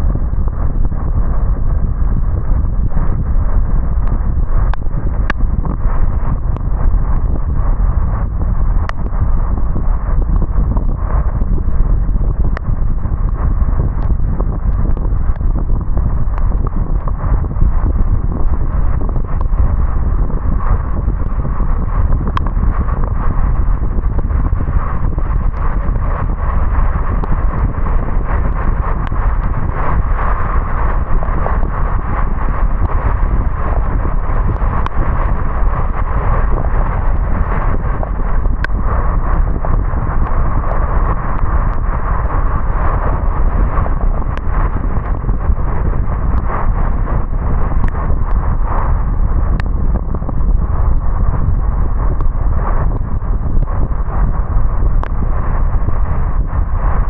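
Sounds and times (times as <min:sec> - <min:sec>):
light ticks: 0:04.0 - 0:05.8, 0:08.9 - 0:09.1
rain: 0:24.0 - 0:48.6.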